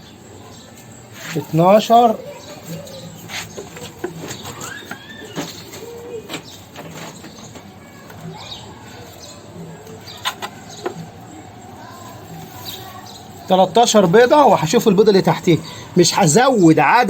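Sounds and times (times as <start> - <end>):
bird chirps: 0.0 - 16.2
dry straw rustling: 0.6 - 16.4.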